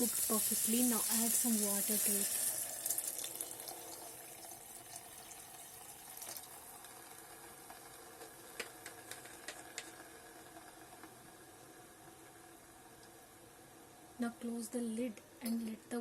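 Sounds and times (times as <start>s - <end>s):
faint watery hiss: 0.0s - 8.4s.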